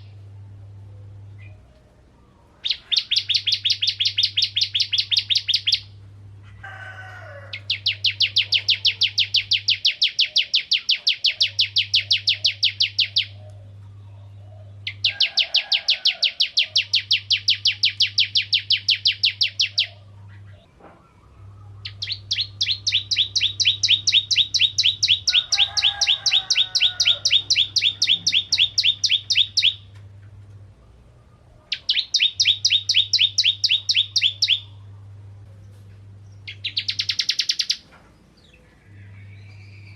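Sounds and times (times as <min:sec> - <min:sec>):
bird singing rattling trills: 0:02.3 - 0:06.0, 0:07.6 - 0:13.8, 0:14.7 - 0:20.7, 0:21.8 - 0:29.9, 0:31.7 - 0:34.8, 0:36.3 - 0:39.9.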